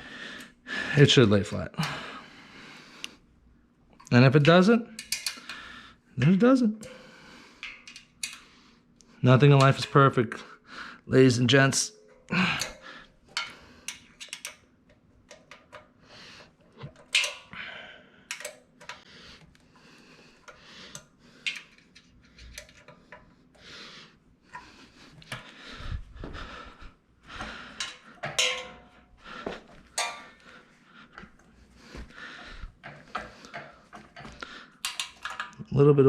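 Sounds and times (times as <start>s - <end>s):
metal parts clinking and clattering: 5.0s - 5.6s, 7.6s - 8.4s, 12.0s - 14.6s, 16.8s - 17.6s, 21.4s - 23.0s, 27.8s - 29.2s, 29.9s - 30.4s, 32.8s - 35.6s.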